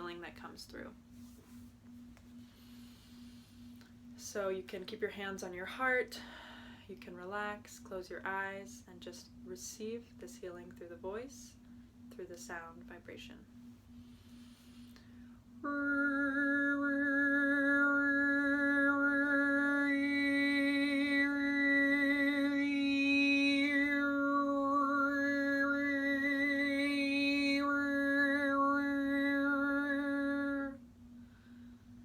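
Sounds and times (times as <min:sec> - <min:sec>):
woman overtone singing: 0:15.6 - 0:30.8.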